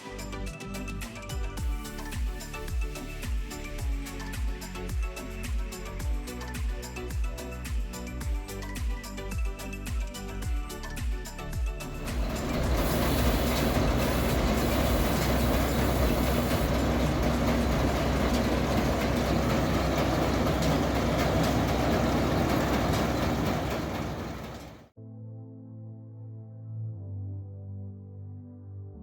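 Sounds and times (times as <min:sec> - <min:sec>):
music: 0:00.0 - 0:22.0, 0:25.0 - 0:29.0
combine harvester running: 0:12.0 - 0:24.9.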